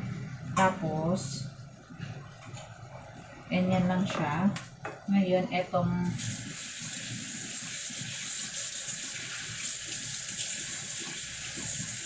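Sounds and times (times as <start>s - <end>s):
tap water running: 6.1s - 12.0s.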